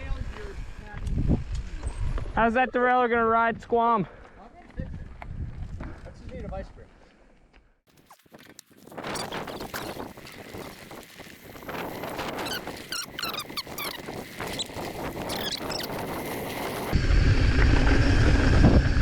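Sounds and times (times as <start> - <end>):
wind buffeting microphone: 0.0 - 2.4, 4.6 - 6.8, 8.9 - 19.0
short high-pitched squeaks: 7.9 - 17.0.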